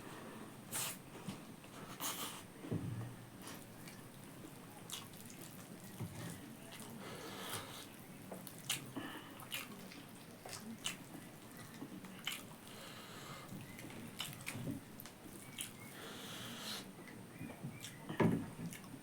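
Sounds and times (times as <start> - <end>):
chewing with wet mouth smacks: 3.4 - 12.8, 13.5 - 16.0, 16.7 - 19.0.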